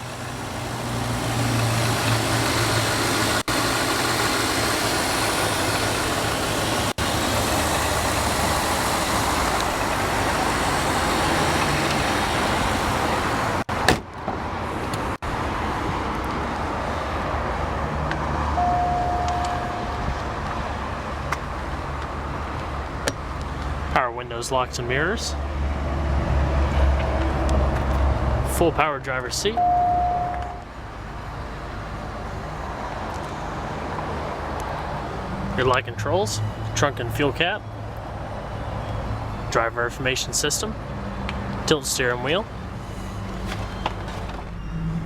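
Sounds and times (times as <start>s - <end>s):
car engine idling: 0.0s - 13.7s, 16.8s - 24.0s.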